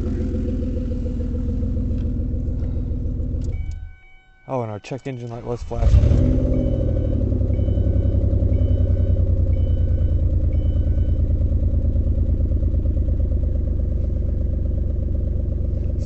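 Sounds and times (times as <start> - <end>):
car engine idling unevenly: 0.0 - 16.0
faint chime: 3.6 - 6.0.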